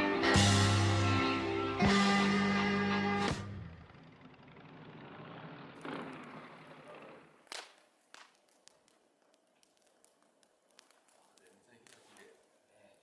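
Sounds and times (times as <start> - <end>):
background music: 0.0 - 3.8
campfire crackling: 5.8 - 13.0
sharp crack: 7.4 - 12.5.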